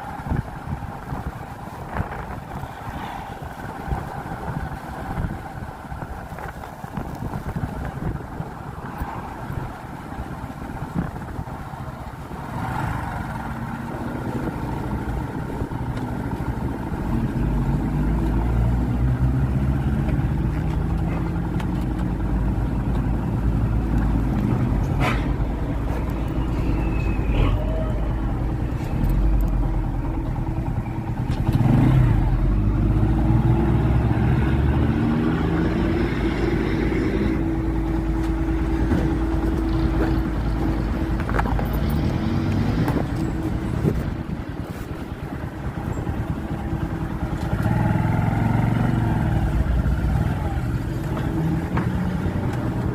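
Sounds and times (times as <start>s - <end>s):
motorcycle engine running: 36.9s - 52.9s.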